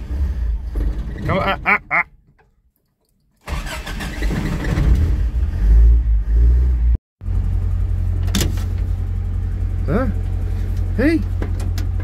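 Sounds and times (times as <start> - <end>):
car engine starting and revving: 0.0 - 1.8, 3.4 - 12.0
engine idling: 7.2 - 12.0.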